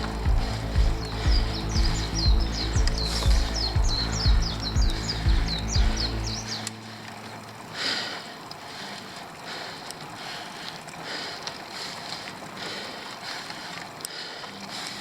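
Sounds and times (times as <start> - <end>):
wind noise on microphone: 0.0 - 6.6
rhythmic bicycle hiss: 0.0 - 15.0.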